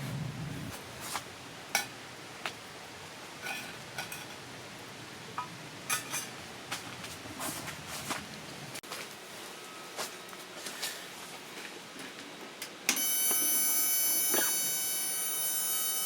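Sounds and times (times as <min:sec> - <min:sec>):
dishes and utensils clinking: 0:03.4 - 0:04.4.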